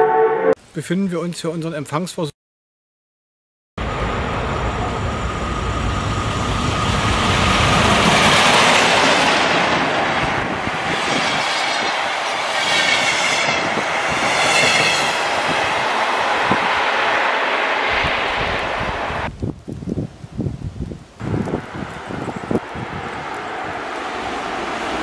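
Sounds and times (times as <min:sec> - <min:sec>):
train wheels rushing on rail: 0:03.8 - 0:19.3, 0:21.2 - 0:25.0.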